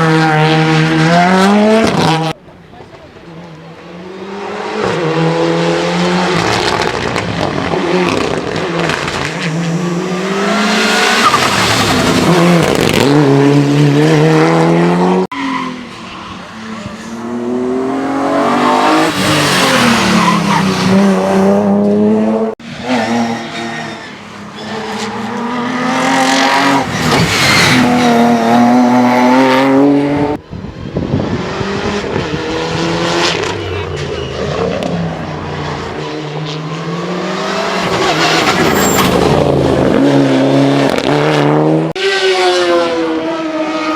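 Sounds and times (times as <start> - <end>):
racing car engines accelerating: 0.0 - 43.9
tyre squeal: 23.2 - 25.3, 26.3 - 28.2, 33.3 - 35.0, 37.8 - 39.5.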